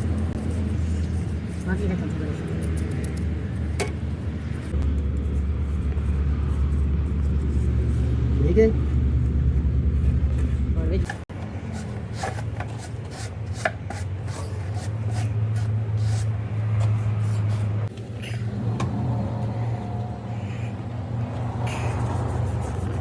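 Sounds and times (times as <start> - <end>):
tools scraping and tapping rubber: 0.0 - 4.1, 9.9 - 18.0.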